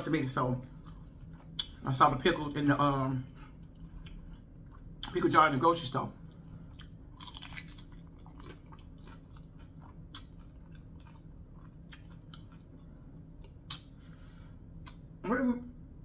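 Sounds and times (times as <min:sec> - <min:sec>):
person chewing food: 0:00.6 - 0:01.9, 0:03.3 - 0:05.2, 0:06.2 - 0:15.2.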